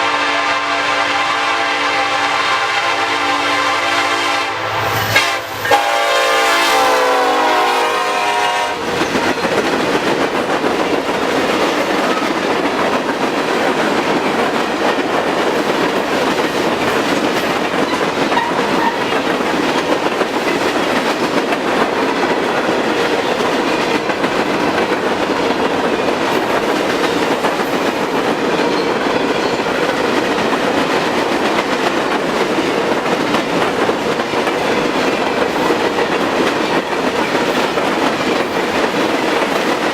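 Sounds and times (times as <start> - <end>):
locomotive air horn: 0.0 - 8.8
freight train rolling past: 0.0 - 39.9
wheels clacking over rail joints: 8.8 - 39.9.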